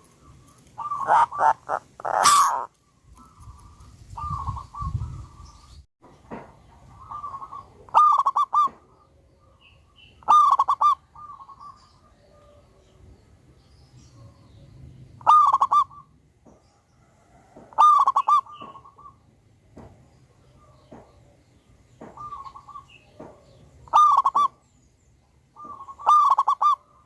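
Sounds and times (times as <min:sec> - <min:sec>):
dove cooing: 0:00.0 - 0:05.4, 0:06.9 - 0:12.6, 0:15.2 - 0:16.1, 0:17.3 - 0:19.2, 0:22.1 - 0:24.6, 0:25.6 - 0:27.0.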